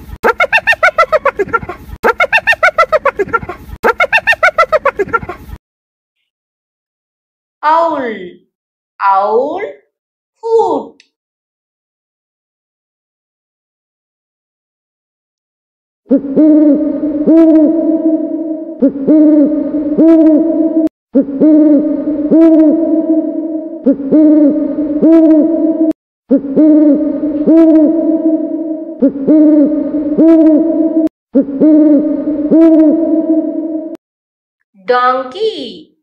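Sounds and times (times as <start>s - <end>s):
owl hooting: 16.2s - 25.9s.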